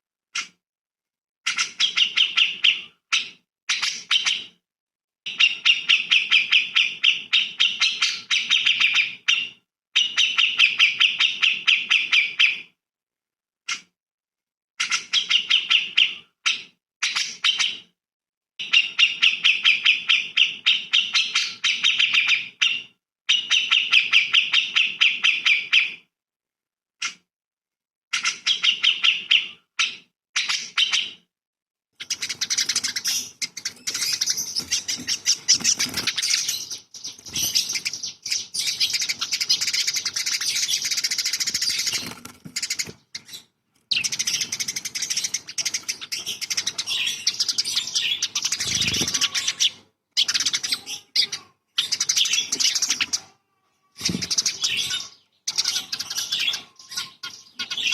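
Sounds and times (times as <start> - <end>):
songbird trilling: 32.0 - 53.3, 54.0 - 57.9.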